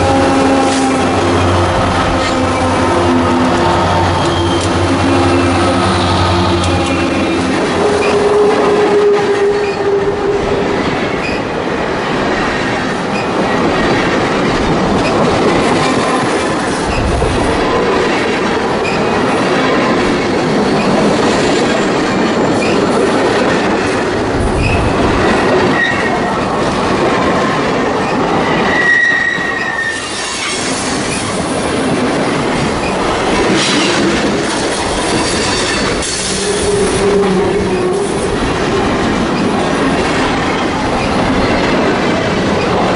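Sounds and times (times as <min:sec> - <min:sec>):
high-pitched wheel squeals: 0:03.6 - 0:10.1, 0:28.7 - 0:30.6
train wheels clattering over rail joints: 0:10.7 - 0:28.8, 0:29.6 - 0:42.9.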